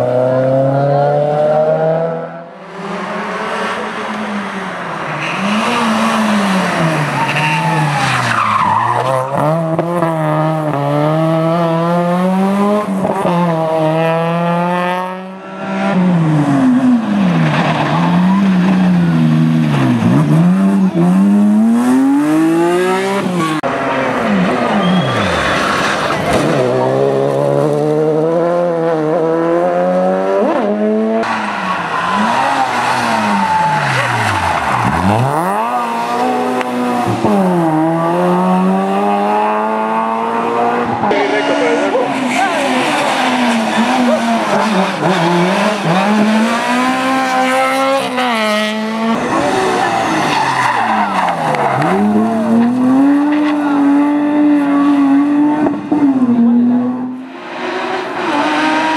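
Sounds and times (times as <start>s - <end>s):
rally car engines revving: 0.0s - 58.9s
tyre squeal: 7.0s - 9.3s, 24.6s - 26.0s.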